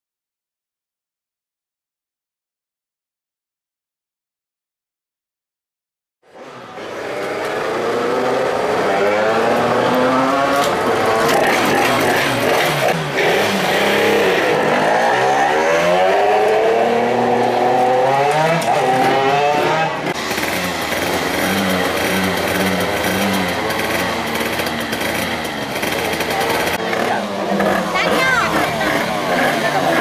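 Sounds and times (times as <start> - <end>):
minibike engines revving: 6.3 - 30.0
engine throttle blips: 6.4 - 30.0.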